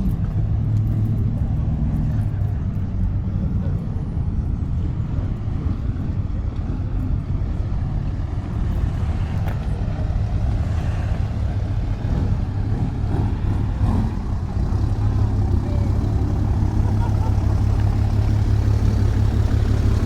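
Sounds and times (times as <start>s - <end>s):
motor vehicle engine rumbling: 0.0s - 20.0s.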